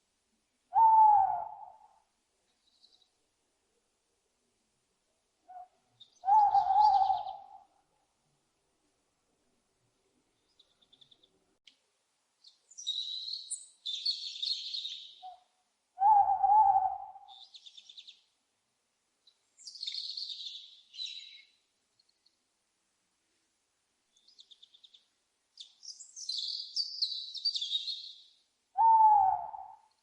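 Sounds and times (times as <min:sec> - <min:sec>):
owl hooting: 0:00.7 - 0:02.0, 0:05.5 - 0:07.7, 0:16.0 - 0:17.7, 0:28.8 - 0:29.9
owl screeching calls: 0:05.5 - 0:07.5, 0:28.8 - 0:29.8.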